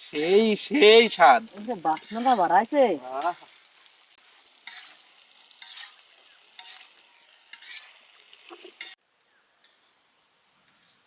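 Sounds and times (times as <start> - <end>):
pasta sizzling in a pan: 0.0 - 9.0
spoon scraping a pan: 1.8 - 3.6, 4.4 - 9.0.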